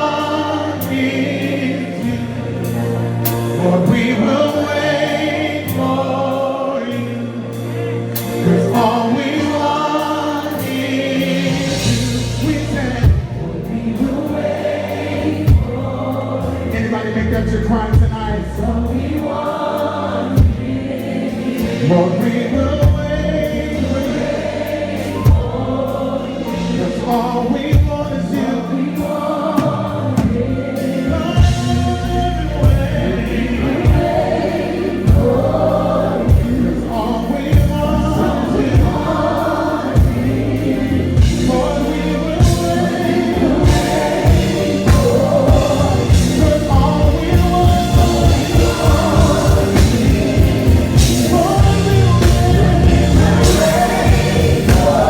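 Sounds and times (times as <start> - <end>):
band with bass: 0.0 - 55.0
choir singing: 0.0 - 55.0
drum hits: 42.4 - 55.0.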